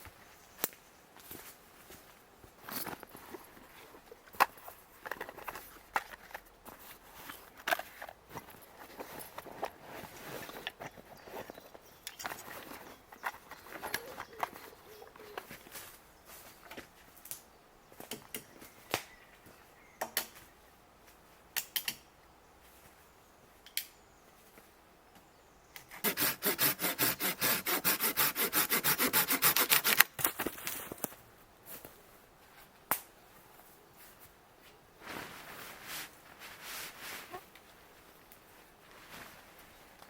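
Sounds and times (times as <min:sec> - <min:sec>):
sharp clicks: 0:21.6 - 0:22.0
hand saw cutting wood: 0:25.9 - 0:30.1.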